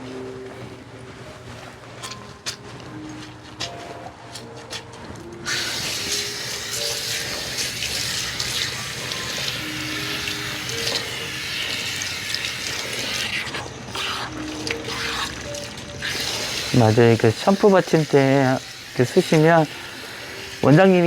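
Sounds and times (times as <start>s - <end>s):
water running into basin: 5.4s - 21.0s.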